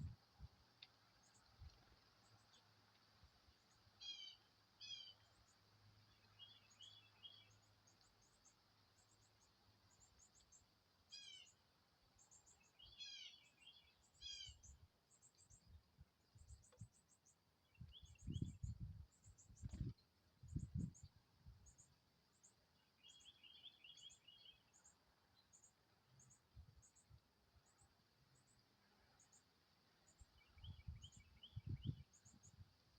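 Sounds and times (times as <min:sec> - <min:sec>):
songbird chirping: 0:00.0 - 0:32.9.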